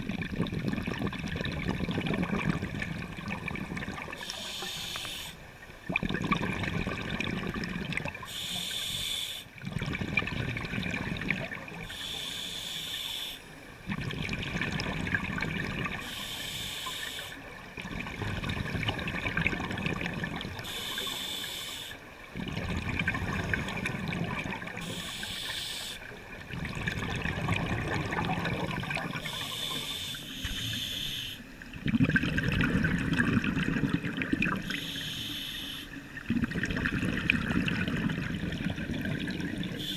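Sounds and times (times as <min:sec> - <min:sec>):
exhaled bubbles rushing: 0:00.0 - 0:04.7, 0:05.7 - 0:08.3, 0:09.6 - 0:11.9, 0:13.8 - 0:16.0, 0:17.6 - 0:21.1, 0:22.2 - 0:29.8, 0:31.6 - 0:34.8, 0:36.0 - 0:39.9
regulator inhalation hiss: 0:04.2 - 0:05.4, 0:08.3 - 0:09.5, 0:11.9 - 0:13.4, 0:16.0 - 0:17.4, 0:20.6 - 0:22.0, 0:24.8 - 0:26.1, 0:29.2 - 0:31.4, 0:34.7 - 0:36.0.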